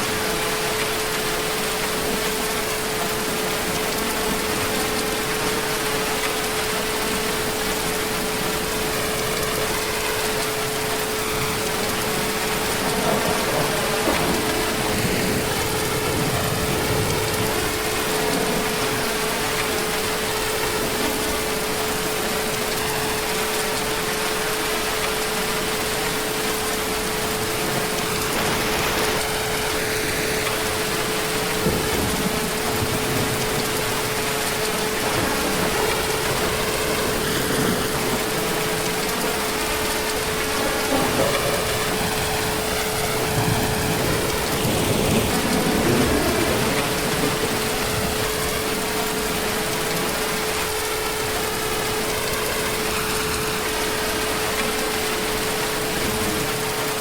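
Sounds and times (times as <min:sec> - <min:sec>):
heavy rain: 0:00.0 - 0:57.0
distant thunder rolling: 0:07.0 - 0:22.2, 0:25.9 - 0:51.4.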